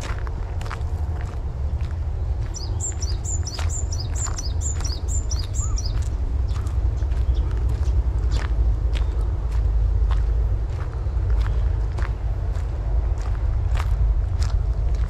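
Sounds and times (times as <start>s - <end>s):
footsteps: 0.0s - 15.0s
steady low rumble: 0.0s - 15.0s
bird calling descending notes: 2.3s - 8.4s.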